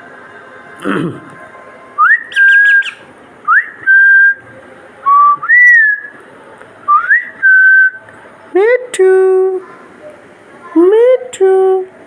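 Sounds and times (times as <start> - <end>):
parrot chick chirps: 2.3 - 3.1.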